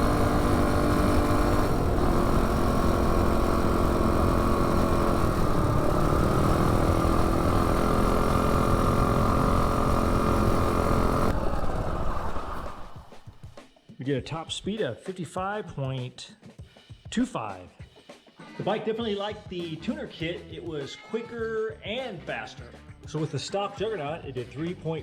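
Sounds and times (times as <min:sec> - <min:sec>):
minibike engine running flat out: 0:00.0 - 0:13.4.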